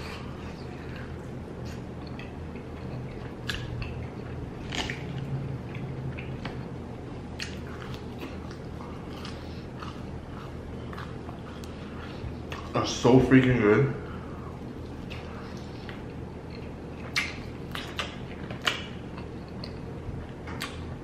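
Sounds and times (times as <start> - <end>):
chewing and biting: 0.0 - 12.8, 14.6 - 21.0
wet mouth smacks: 17.0 - 19.8.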